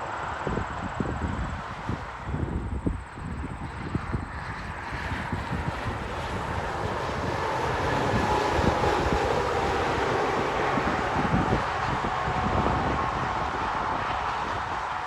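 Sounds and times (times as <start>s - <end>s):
wind buffeting microphone: 0.0s - 15.0s
truck passing: 4.6s - 15.0s.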